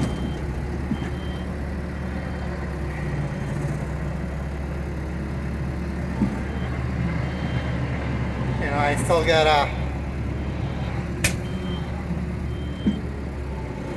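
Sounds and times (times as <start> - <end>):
diesel engine running steadily: 0.0 - 13.9.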